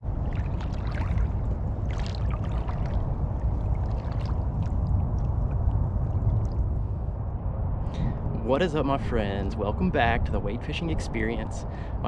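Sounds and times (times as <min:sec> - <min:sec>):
water splashing and sloshing: 0:00.0 - 0:07.4
wind rumble on microphone: 0:00.0 - 0:12.0.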